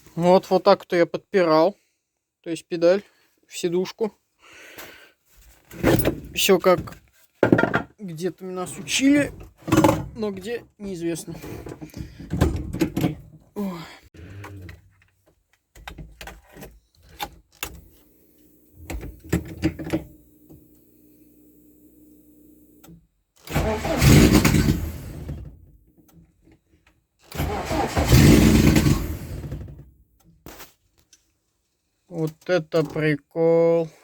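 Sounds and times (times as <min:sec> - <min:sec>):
car engine starting and stalling: 0:22.6 - 0:25.8, 0:27.2 - 0:29.9.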